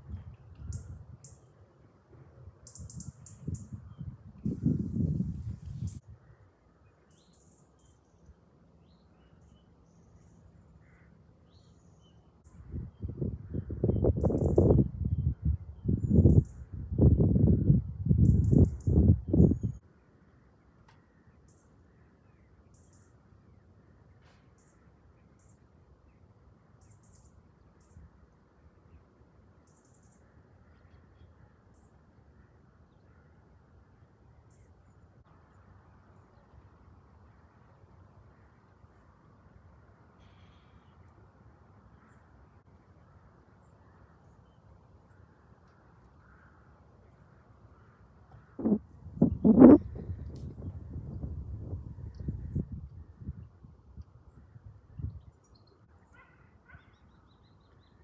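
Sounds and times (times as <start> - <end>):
small birds chirping: 2.6 - 4.2.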